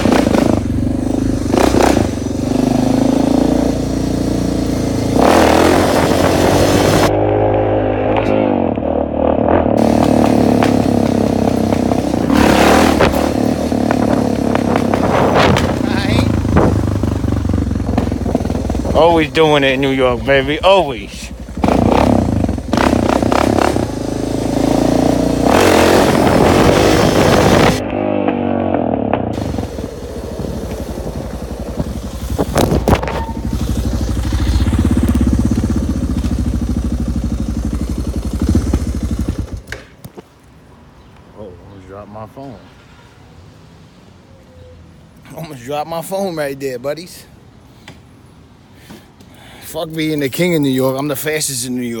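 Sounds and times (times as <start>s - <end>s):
motorcycle engine running: 0.0s - 39.7s.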